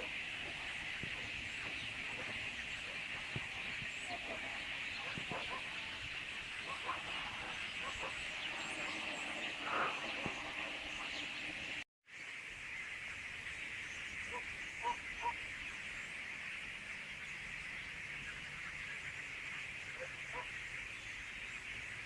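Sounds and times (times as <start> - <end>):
flock of starlings chattering: 0.0 - 11.8.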